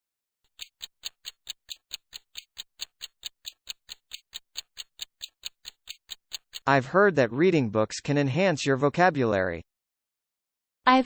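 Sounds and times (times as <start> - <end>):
clock ticking: 0.5 - 6.8.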